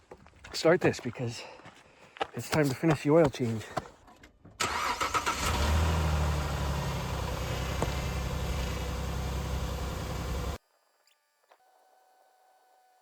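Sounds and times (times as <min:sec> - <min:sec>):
car engine idling: 0:04.6 - 0:10.6.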